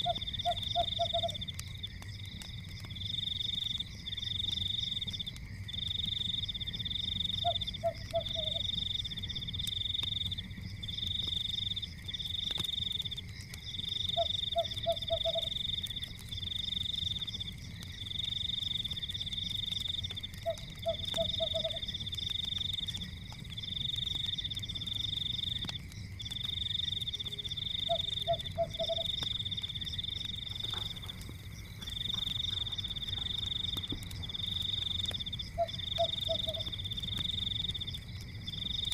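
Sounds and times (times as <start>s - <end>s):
low frog croak: 0.0s - 1.5s, 7.4s - 8.7s, 14.1s - 15.6s, 27.2s - 29.3s, 31.8s - 36.8s
fire rumbling and crackling: 0.0s - 38.9s
frogs trilling: 0.0s - 38.9s.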